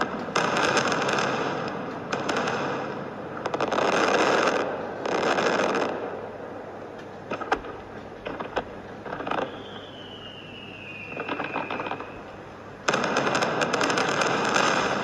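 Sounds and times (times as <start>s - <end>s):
fireworks sharp bangs: 0.0s - 6.5s, 7.2s - 15.0s
fireworks crackling burst: 0.0s - 15.0s
falling firework whistle: 9.1s - 12.4s.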